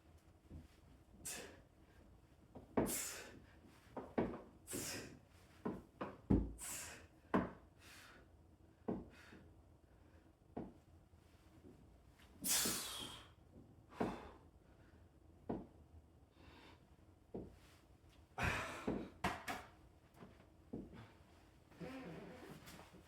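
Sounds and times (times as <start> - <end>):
sharp exhales and gasps: 12.5 - 13.4
person breathing hard: 12.5 - 15.0, 18.4 - 19.0.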